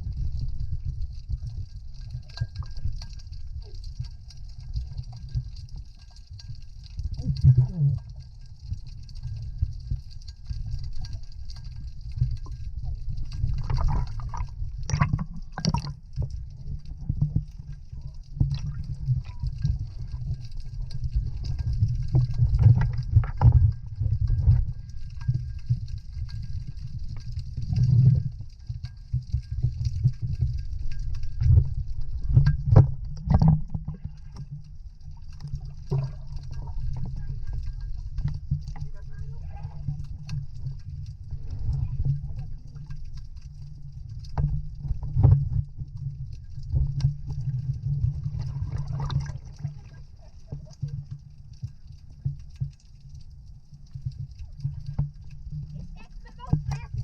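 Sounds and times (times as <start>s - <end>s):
water gurgling and sloshing: 0.0s - 57.0s
water splashes: 1.2s - 57.0s
low rumble: 7.1s - 57.0s.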